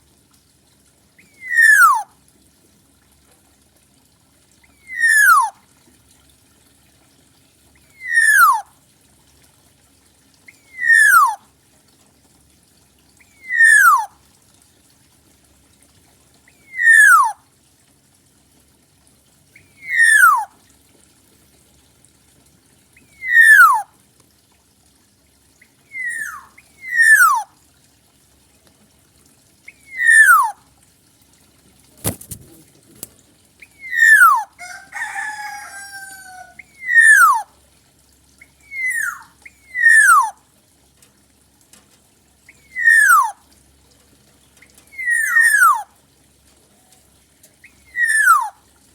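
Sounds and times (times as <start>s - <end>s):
warbling bird: 1.2s - 2.1s, 4.7s - 5.6s, 7.8s - 8.7s, 10.5s - 11.4s, 13.2s - 14.1s, 16.5s - 17.4s, 19.6s - 20.5s, 23.0s - 23.9s, 25.8s - 27.5s, 29.7s - 30.6s, 32.0s - 37.5s, 38.4s - 40.4s, 42.5s - 43.4s, 44.8s - 45.9s, 47.6s - 48.6s
bird calling falling note: 1.4s - 2.0s, 4.9s - 5.5s, 8.0s - 8.6s, 10.7s - 11.4s, 13.4s - 14.1s, 16.7s - 17.4s, 19.7s - 20.5s, 25.9s - 27.4s, 29.9s - 30.5s, 42.7s - 43.3s, 44.9s - 45.8s, 47.9s - 48.5s.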